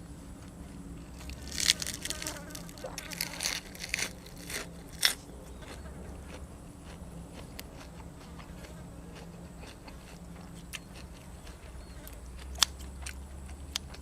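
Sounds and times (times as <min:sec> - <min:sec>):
crunchy chewing of crisp food: 0:00.0 - 0:14.0
low steady hum: 0:00.0 - 0:14.0.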